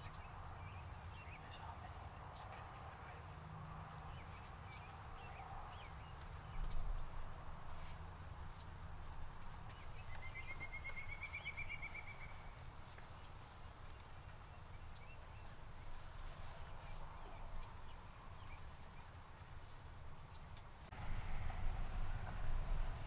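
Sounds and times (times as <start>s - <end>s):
songbird chirps: 0.0s - 7.9s, 8.5s - 23.0s
low steady rumble: 20.9s - 23.0s.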